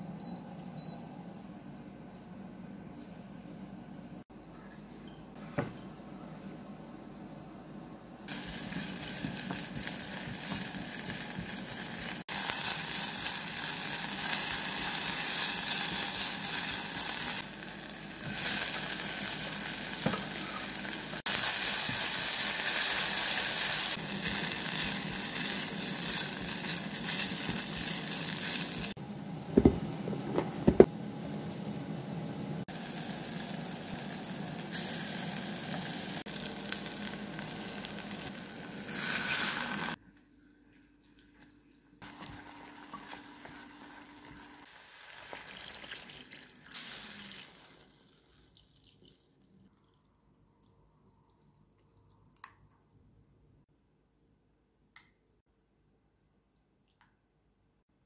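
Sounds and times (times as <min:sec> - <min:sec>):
onions sizzling in a pot: 0:08.3 - 0:29.0, 0:32.7 - 0:40.0, 0:42.0 - 0:48.4.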